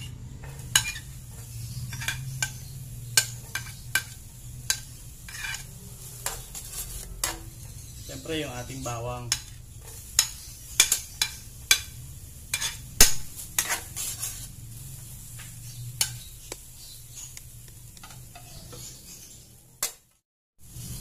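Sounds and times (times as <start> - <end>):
metal spatula scraping pot: 0.0 - 11.9, 12.5 - 14.7, 15.4 - 16.4, 18.0 - 19.3
onion sizzling in oil: 0.0 - 21.0.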